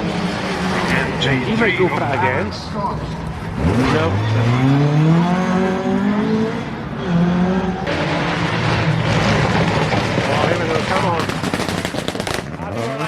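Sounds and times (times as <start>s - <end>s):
rally car engine revving: 0.0s - 13.0s
rough rushing noise: 7.8s - 12.7s.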